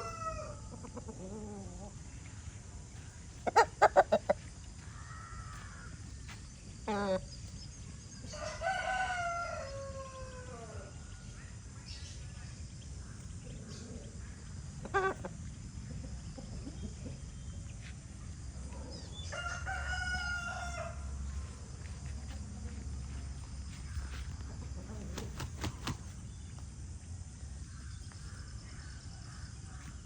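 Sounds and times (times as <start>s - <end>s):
rooster crowing: 0.0s - 0.6s, 8.3s - 11.0s, 19.3s - 21.2s.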